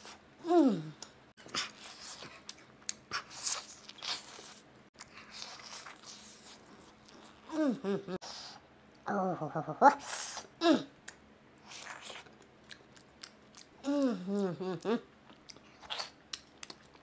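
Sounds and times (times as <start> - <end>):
person humming: 0.4 - 1.0, 7.5 - 8.2, 10.6 - 10.9, 13.8 - 15.1
chewing crispy fried chicken: 1.4 - 7.5, 11.0 - 14.1, 14.8 - 17.0.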